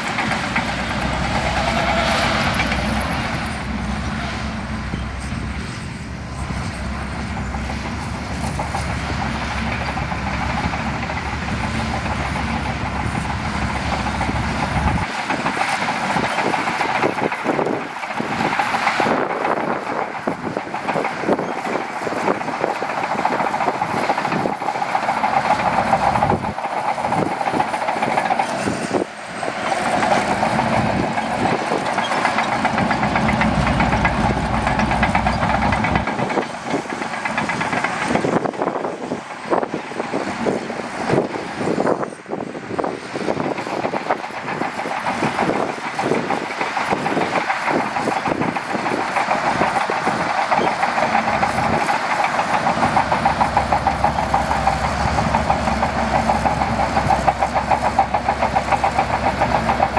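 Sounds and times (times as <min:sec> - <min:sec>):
heavy low rumble: 0:00.0 - 0:15.1, 0:28.6 - 0:41.0, 0:51.0 - 0:59.9
bulldozer diesel engine under load: 0:00.0 - 0:59.9
steel tracks clanking and rattling: 0:00.0 - 0:59.9.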